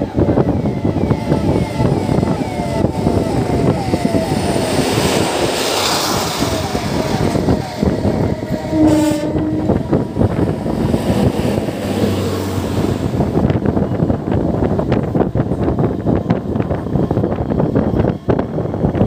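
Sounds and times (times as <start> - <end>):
train rumble and wheel noise: 0.0 - 19.0
train horn: 6.1 - 10.5.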